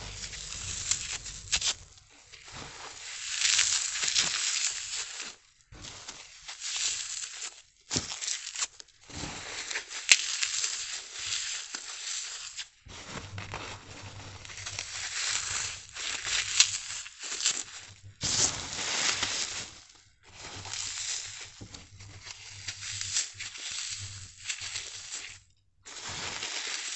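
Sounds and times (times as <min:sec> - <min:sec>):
foam snapping: 0:00.0 - 0:05.2, 0:12.9 - 0:25.4
floral foam crunching: 0:00.0 - 0:07.5, 0:11.1 - 0:26.9.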